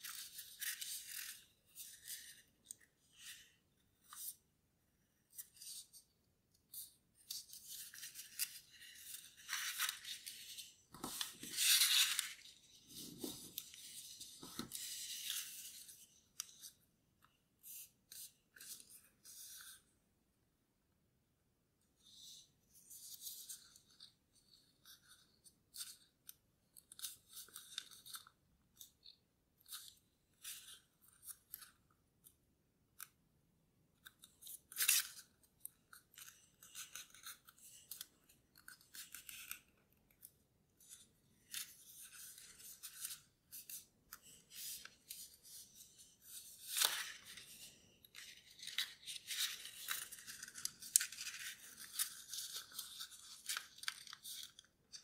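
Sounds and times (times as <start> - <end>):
paper rustling and crinkling: 0.0 - 4.4, 6.7 - 16.8, 34.1 - 55.0
paper crackle: 6.8 - 15.9, 40.8 - 55.0.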